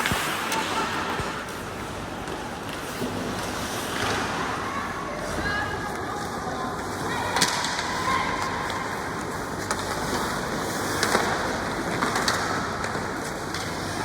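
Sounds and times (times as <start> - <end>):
hockey rink noise: 0.0 - 14.0
sharp knocks of sticks and puck: 11.0 - 13.8.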